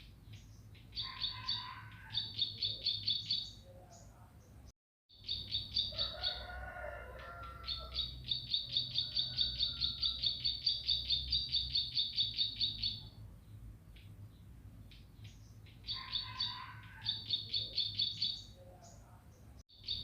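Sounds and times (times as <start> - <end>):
bird repeating high chirps: 5.1 - 6.0, 8.0 - 13.1, 17.1 - 18.6, 19.7 - 20.0.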